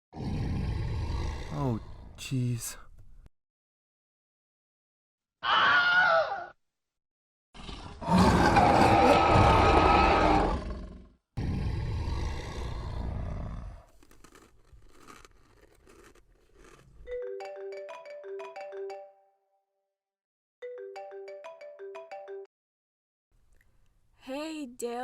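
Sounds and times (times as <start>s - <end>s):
harsh roar sound effect: 7.6s - 13.9s
mobile phone ringtone: 17.1s - 19.4s, 20.6s - 22.5s.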